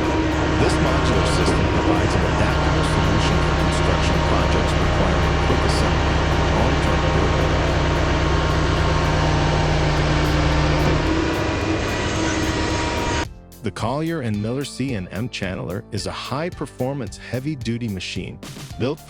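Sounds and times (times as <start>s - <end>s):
large engine running: 0.0s - 13.3s
low hum: 0.0s - 13.3s.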